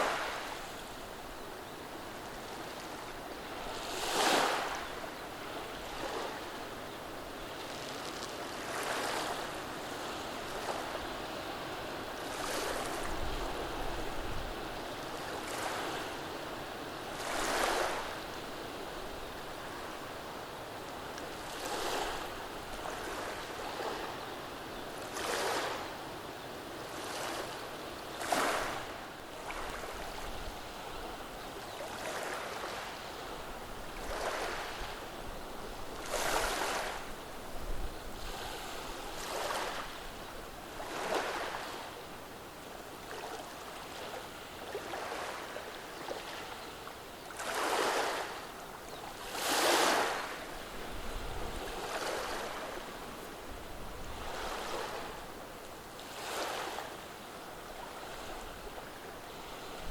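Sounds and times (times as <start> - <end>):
waves washing over cobblestones: 0.0 - 0.6.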